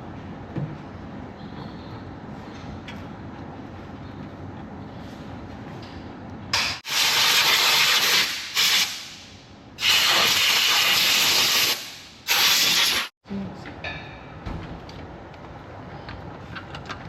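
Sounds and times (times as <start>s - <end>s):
compressed air blowgun blasts: 6.6s - 13.1s.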